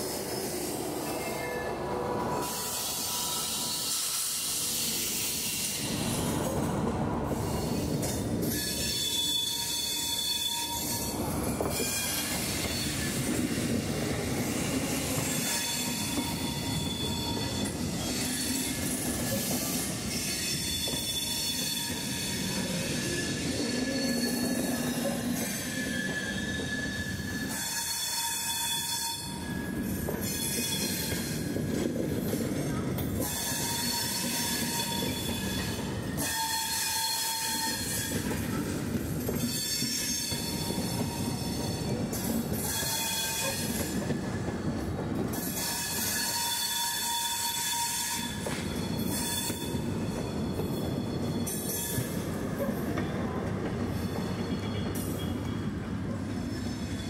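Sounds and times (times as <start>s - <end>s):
train wheels rumbling on rails: 0.0s - 57.0s
high-pitched squeals from running gear: 7.4s - 13.6s, 15.2s - 31.5s, 45.4s - 52.2s.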